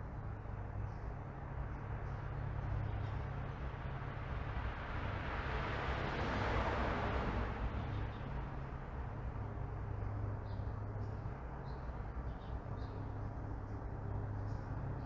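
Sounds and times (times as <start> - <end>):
low traffic rumble: 0.0 - 15.0
car driving past: 4.4 - 8.6.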